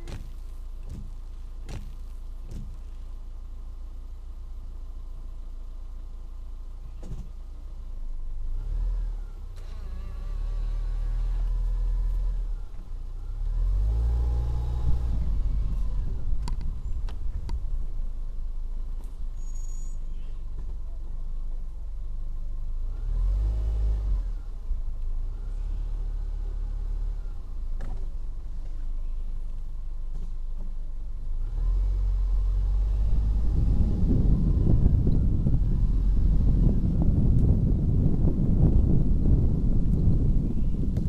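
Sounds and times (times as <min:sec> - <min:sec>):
vehicle engine accelerating: 0:08.1 - 0:41.0.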